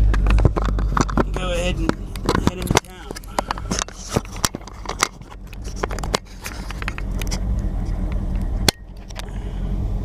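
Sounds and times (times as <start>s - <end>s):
clicks and rattles of handling: 0.0s - 7.4s
truck engine running: 0.0s - 10.0s.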